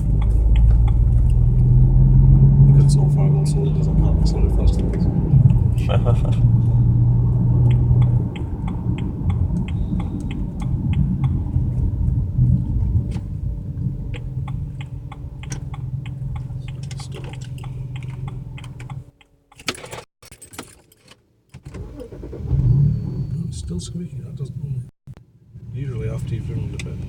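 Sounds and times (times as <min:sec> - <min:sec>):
engine running roughly with ticking: 0:00.0 - 0:20.1.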